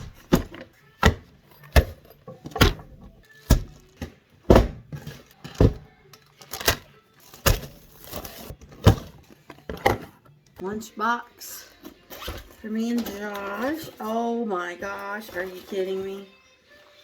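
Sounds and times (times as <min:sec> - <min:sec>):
household objects knocking: 0:00.0 - 0:05.9.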